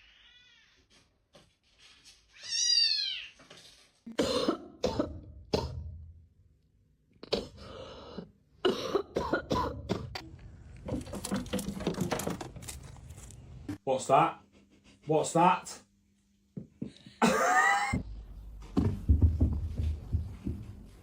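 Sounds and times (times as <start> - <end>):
cat meowing: 0.0 - 0.8, 2.3 - 3.4.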